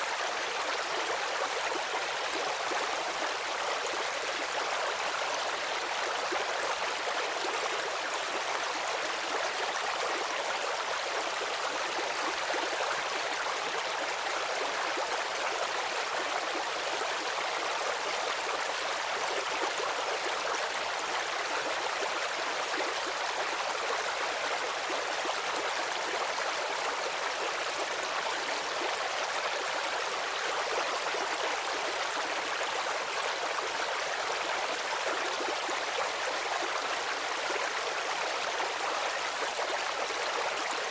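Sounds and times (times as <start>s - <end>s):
running water rushing: 0.0s - 15.4s.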